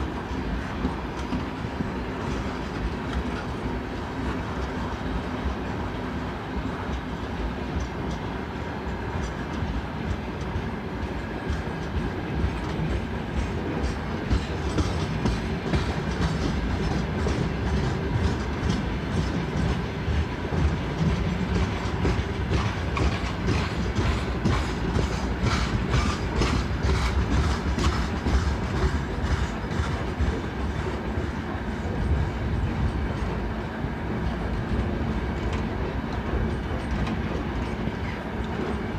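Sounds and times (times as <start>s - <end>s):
freight train wagons rolling: 0.0s - 38.9s
wheels clacking over rail joints: 9.2s - 31.4s.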